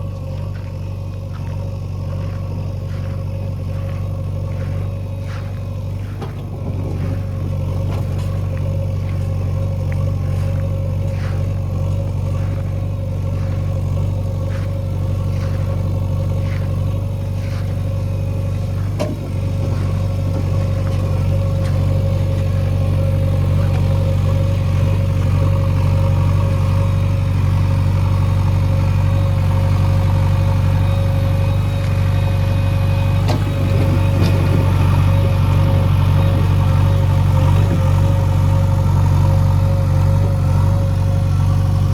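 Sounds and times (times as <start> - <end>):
heavy diesel engine running: 0.0 - 41.9
light metal clanks: 18.5 - 24.4.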